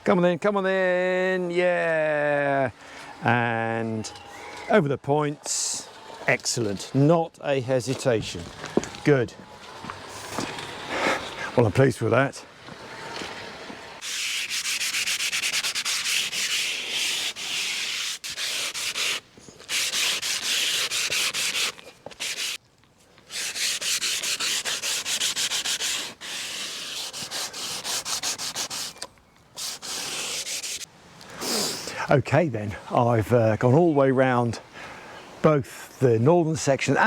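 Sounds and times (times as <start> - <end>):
sandpaper scraping on metal rails: 3.0 - 11.8, 12.8 - 22.6, 23.2 - 31.9.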